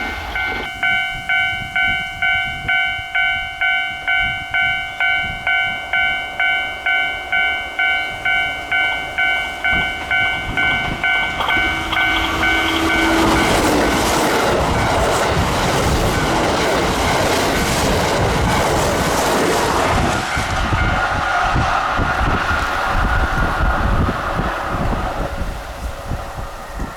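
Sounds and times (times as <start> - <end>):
level crossing warning bell: 0.0 - 18.8, 20.2 - 21.5
train wheels clattering over rails: 8.2 - 26.9.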